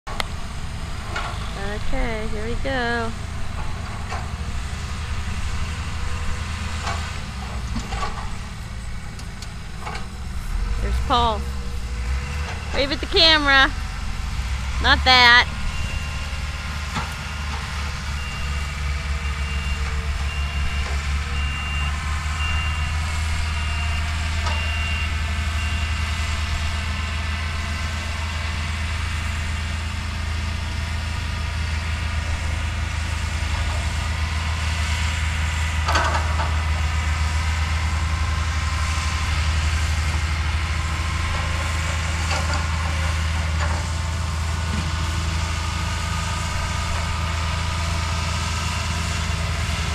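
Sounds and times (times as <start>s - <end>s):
bulldozer diesel engine droning: 0.0s - 49.9s
reversing alarm beeping: 14.8s - 26.4s.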